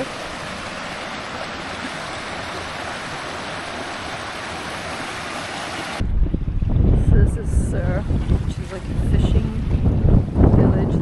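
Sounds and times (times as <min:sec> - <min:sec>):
flood water rushing: 0:00.0 - 0:06.0, 0:08.0 - 0:10.2.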